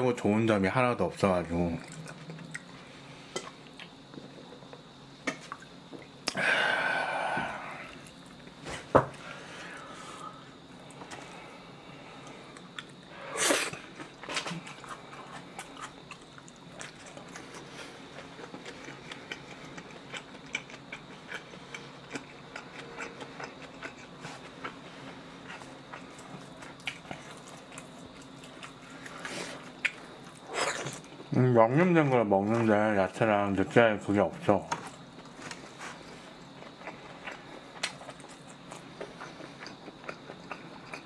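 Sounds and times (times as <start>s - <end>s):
person chewing noodles: 1.8s - 4.3s, 9.4s - 31.3s, 34.8s - 41.0s.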